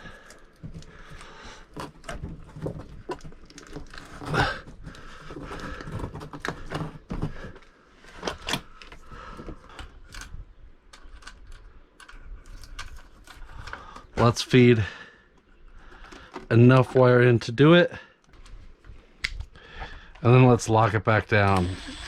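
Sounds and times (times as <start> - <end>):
clicks and rattles of wiring: 0.0 - 14.4, 15.3 - 17.2.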